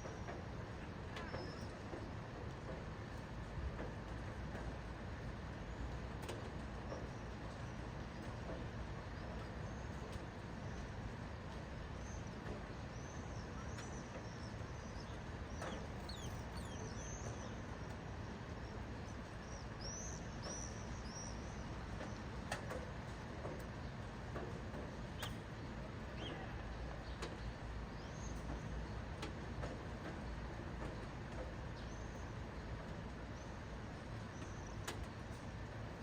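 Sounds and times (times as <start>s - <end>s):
small birds chirping: 12.9s - 22.2s.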